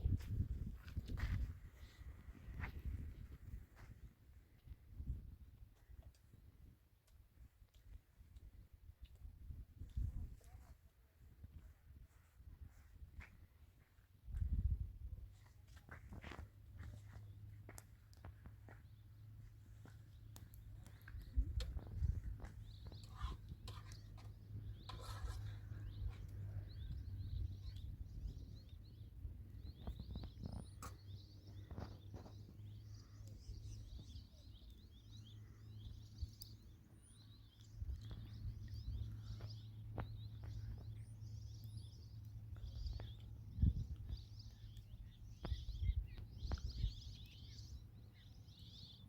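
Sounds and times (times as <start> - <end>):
small birds chirping: 0.0 - 49.0
steady low rumble: 16.3 - 34.5.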